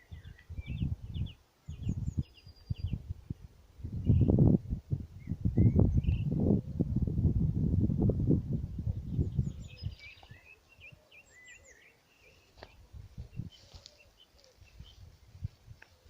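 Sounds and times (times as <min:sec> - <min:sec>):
small birds chirping: 0:00.0 - 0:04.4, 0:08.7 - 0:16.0.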